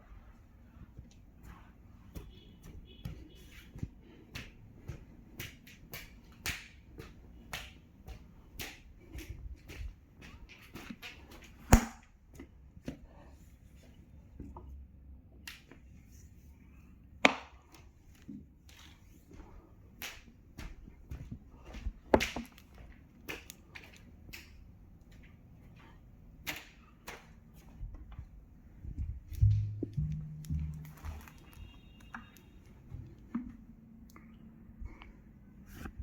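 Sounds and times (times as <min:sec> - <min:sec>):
light clicks and knocks: 0:29.3 - 0:34.3.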